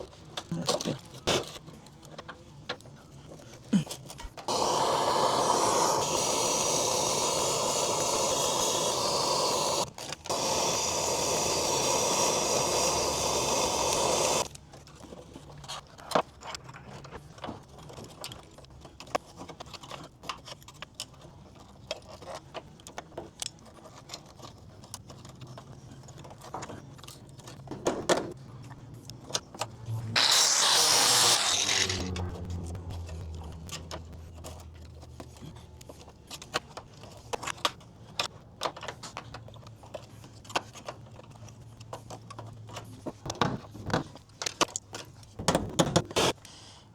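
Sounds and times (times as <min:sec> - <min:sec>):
loud rushing noise: 0:29.8 - 0:34.7.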